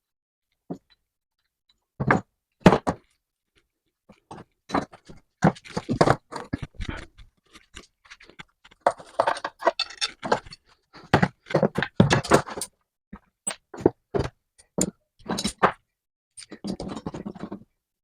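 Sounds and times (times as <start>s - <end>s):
metal tools clicking and scraping: 9.2s - 10.6s, 16.4s - 17.0s.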